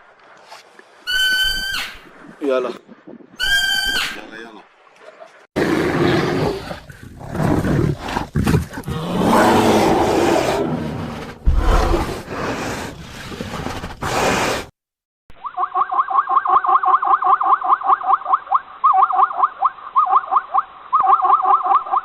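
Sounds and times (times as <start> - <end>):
large animal roaring: 5.6 - 13.0.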